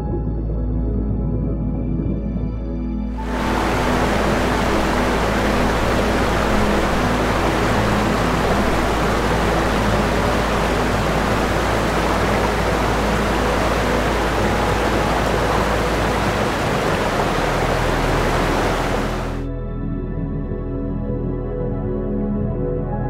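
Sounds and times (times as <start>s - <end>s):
sea water rushing around rocks: 3.2s - 19.4s.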